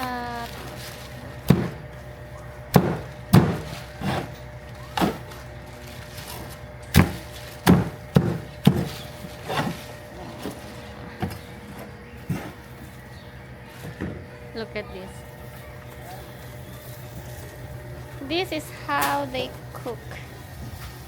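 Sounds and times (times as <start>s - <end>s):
steady low hum: 0.0s - 21.0s
cleaver chopping chicken: 1.4s - 2.0s, 2.7s - 5.4s, 6.9s - 9.9s.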